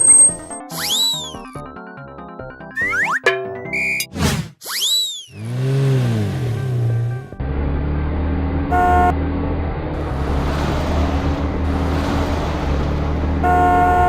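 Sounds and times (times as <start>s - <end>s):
truck engine rumble: 5.4s - 14.0s
truck horn toots: 8.6s - 9.2s, 13.2s - 14.0s.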